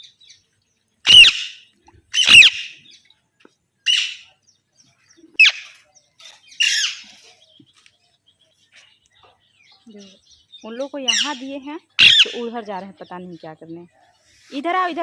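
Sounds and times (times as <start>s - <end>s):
parrots squawking: 1.1s - 2.8s, 3.8s - 4.3s, 5.4s - 5.8s, 6.6s - 7.2s, 11.1s - 12.5s.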